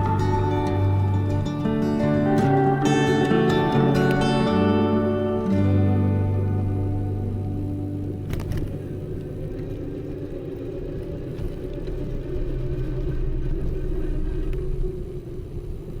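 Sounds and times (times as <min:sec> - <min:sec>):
background music: 0:00.0 - 0:09.6
city street traffic rumble: 0:00.0 - 0:16.0.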